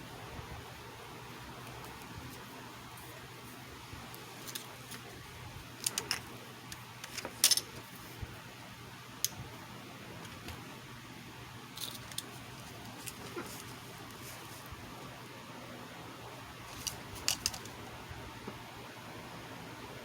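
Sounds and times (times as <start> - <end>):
faint steady hiss: 0.0 - 20.0
small tools clicking and tapping: 5.8 - 7.8, 16.8 - 17.8.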